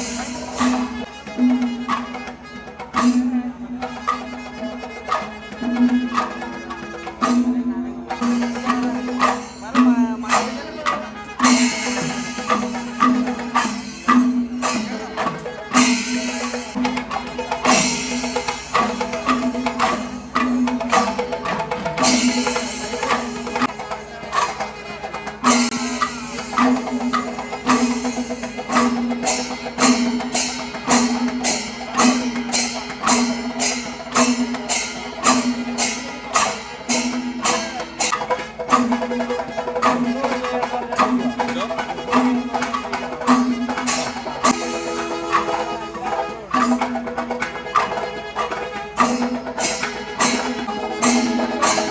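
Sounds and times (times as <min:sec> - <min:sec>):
cymbal-like clashes: 0:00.0 - 0:51.9
drums: 0:00.0 - 0:51.9
steady held tones: 0:43.4 - 0:51.9.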